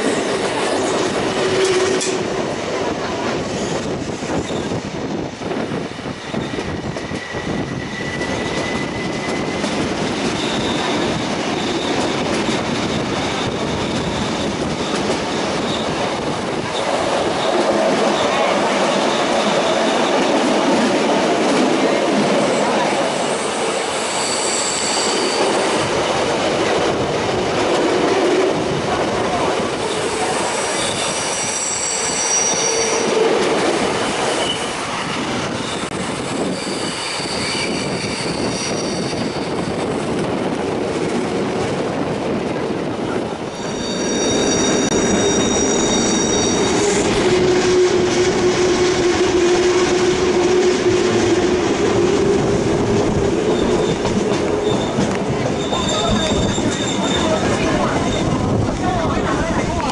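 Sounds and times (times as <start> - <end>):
train rumbling on rails: 0.0 - 59.9
wheel flanges squealing: 35.6 - 39.6, 43.5 - 49.2, 53.4 - 58.5.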